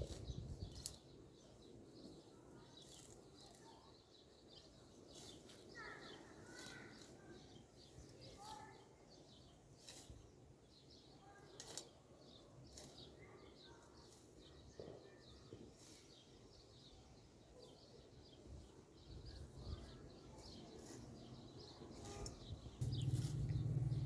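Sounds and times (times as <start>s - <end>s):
small birds chirping: 0.0s - 24.0s
low background rumble: 22.8s - 24.0s.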